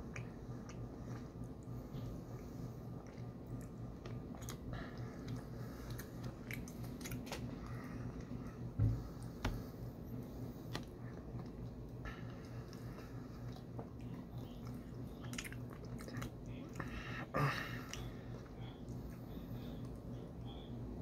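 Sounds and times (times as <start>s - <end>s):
person chewing: 0.0s - 8.6s, 10.7s - 17.0s.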